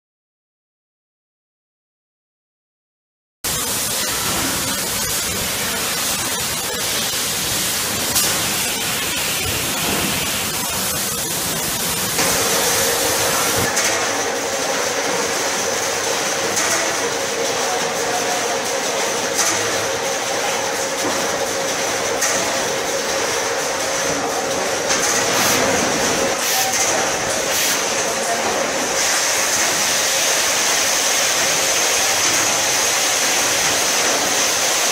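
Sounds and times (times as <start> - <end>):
packing machine mechanical noise: 3.5 - 34.9.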